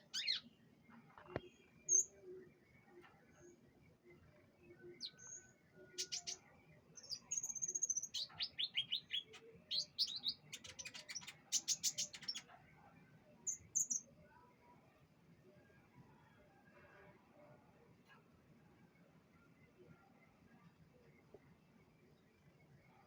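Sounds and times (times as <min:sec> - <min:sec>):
canary singing trills: 0:00.0 - 0:00.6, 0:04.8 - 0:06.4, 0:07.0 - 0:12.5.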